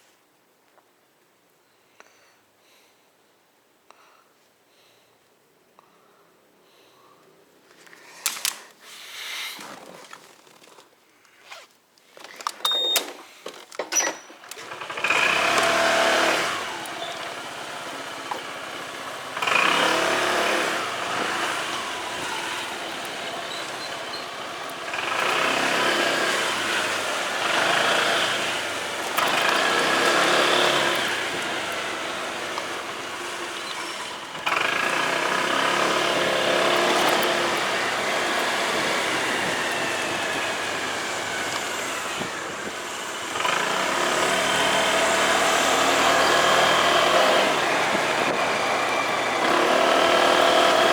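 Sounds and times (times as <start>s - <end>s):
clicks: 7.8s - 8.8s, 12.0s - 40.5s
motorcycle riding: 14.4s - 50.9s.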